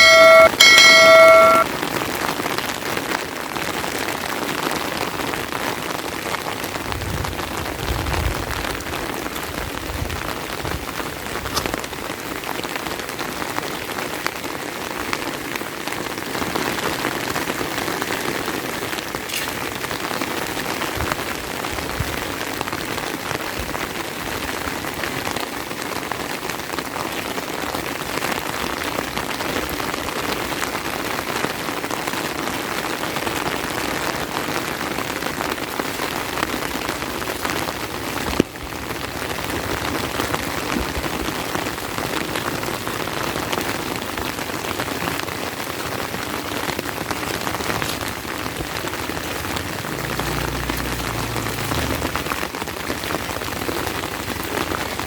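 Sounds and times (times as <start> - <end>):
steady rain hiss: 2.3 - 55.0
low rumbles: 47.2 - 54.6.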